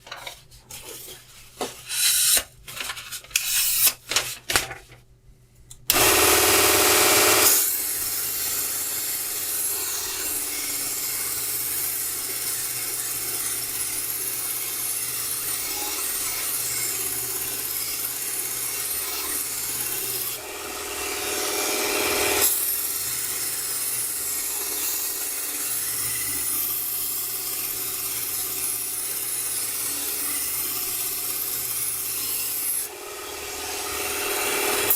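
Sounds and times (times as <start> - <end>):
belt grinder sharpening knife: 1.8 - 2.5, 3.4 - 4.0.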